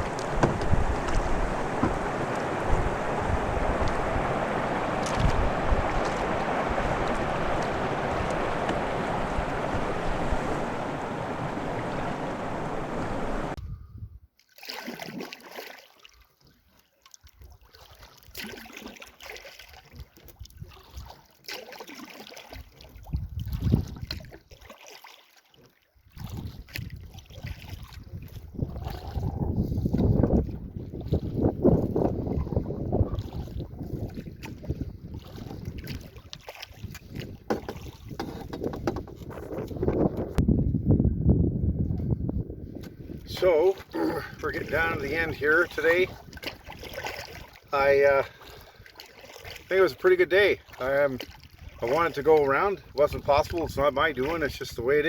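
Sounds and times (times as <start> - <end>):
paddle splashing in water: 0.0 - 13.6, 14.4 - 40.4, 42.7 - 55.0
wind noise on microphone: 0.0 - 14.3, 23.0 - 24.3, 26.1 - 47.7.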